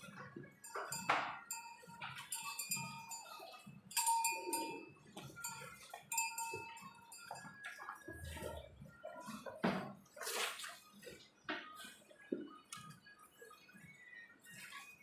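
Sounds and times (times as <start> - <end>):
metallic clinks: 0.7 - 7.8.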